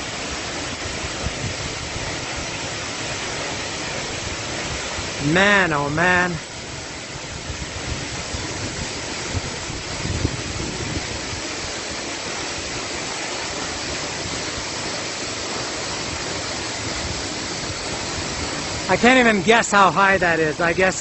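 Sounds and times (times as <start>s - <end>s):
waterfall crashing: 0.0s - 21.0s
wind rumble on microphone: 0.7s - 2.8s, 6.5s - 12.8s, 16.0s - 18.9s.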